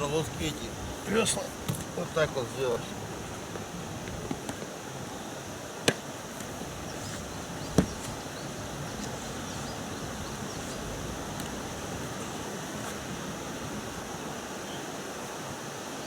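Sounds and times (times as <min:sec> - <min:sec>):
outdoor hiss: 0:00.0 - 0:16.0
oars knocking: 0:05.8 - 0:13.1.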